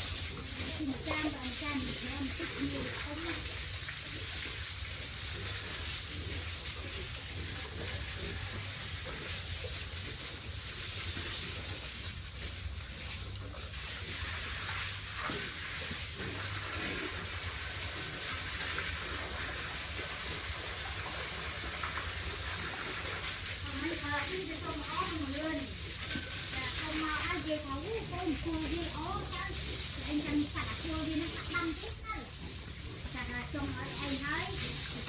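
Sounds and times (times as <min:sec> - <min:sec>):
water spraying hiss: 0:00.0 - 0:35.0.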